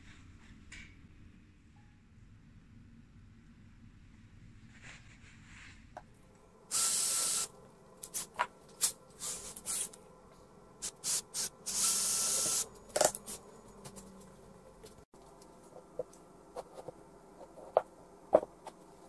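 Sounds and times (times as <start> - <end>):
hissing spray from nozzle: 6.7 - 7.5.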